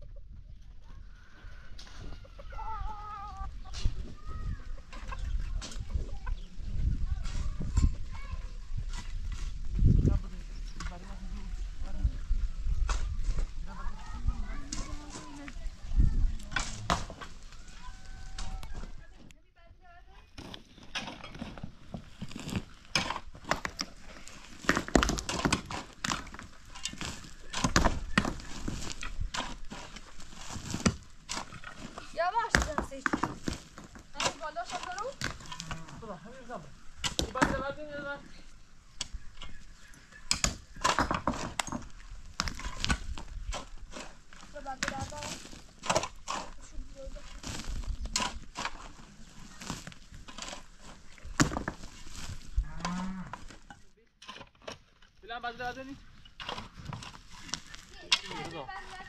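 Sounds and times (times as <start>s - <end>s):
chickens clucking: 0.0s - 7.6s
irregular knocks and thuds: 40.3s - 44.2s, 51.3s - 52.0s.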